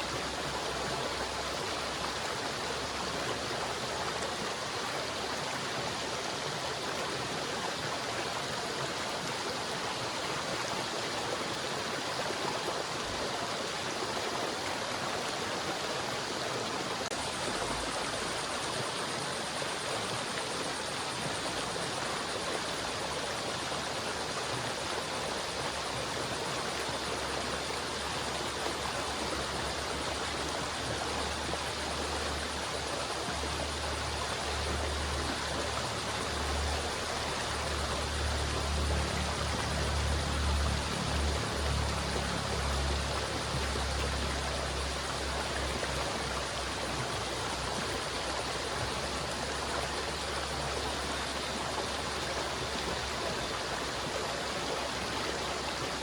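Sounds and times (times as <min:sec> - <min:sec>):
river water flowing: 0:00.0 - 0:56.0.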